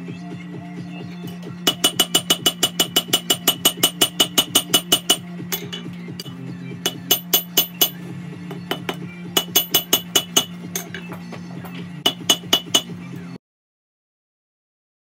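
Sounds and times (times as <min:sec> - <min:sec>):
gas forge humming: 0:00.0 - 0:13.4
hammer striking steel on anvil: 0:01.4 - 0:13.0.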